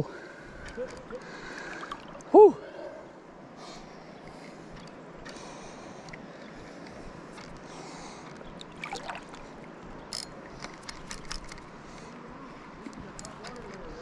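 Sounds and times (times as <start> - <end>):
water sloshing around wader: 0.7 - 2.7, 7.4 - 9.8
sharp splashes and knocks: 8.6 - 9.5
river current rushing: 8.6 - 9.8.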